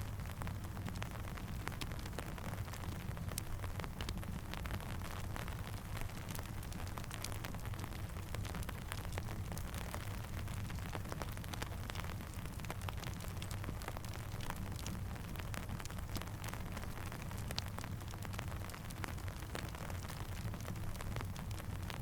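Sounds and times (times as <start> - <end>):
steady rain: 0.0 - 22.0
campfire crackling: 0.1 - 22.0.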